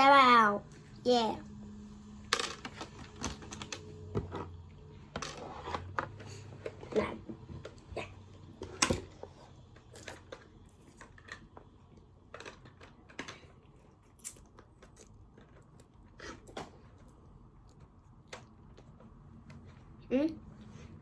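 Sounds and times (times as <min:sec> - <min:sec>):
plastic toys clicking and tapping: 0:08.6 - 0:13.6.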